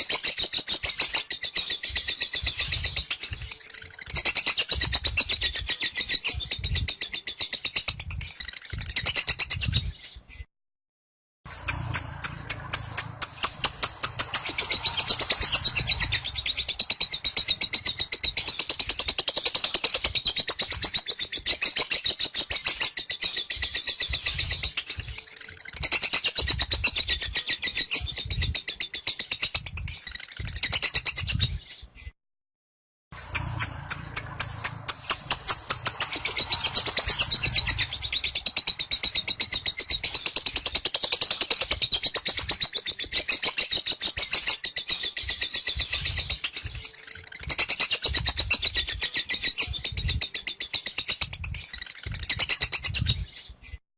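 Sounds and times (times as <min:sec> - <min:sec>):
lovebird chattering trill: 0:11.5 - 0:31.4, 0:33.2 - 0:53.3.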